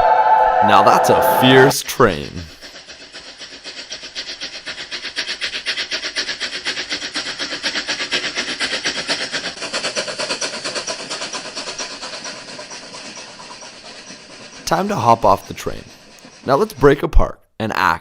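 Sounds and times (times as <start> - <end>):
steam locomotive chugging: 0.0 - 17.4.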